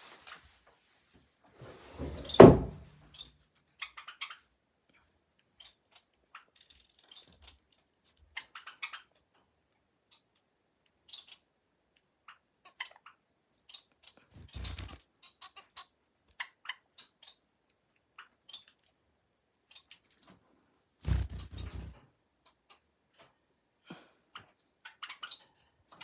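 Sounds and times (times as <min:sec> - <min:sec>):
loud thunk: 0:02.4 - 0:02.8.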